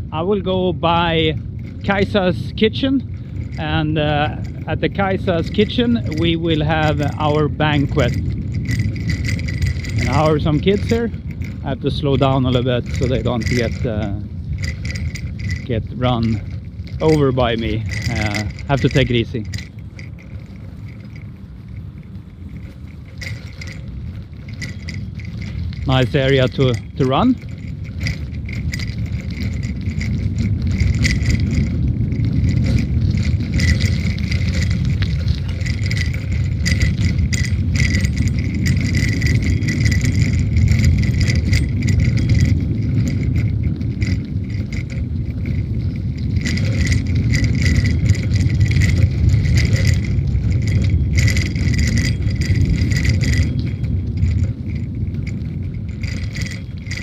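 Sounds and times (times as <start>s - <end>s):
bicycle tyres rumbling: 0.0s - 57.0s
bike rattling and jangling: 0.0s - 57.0s
wind on microphone: 0.0s - 57.0s.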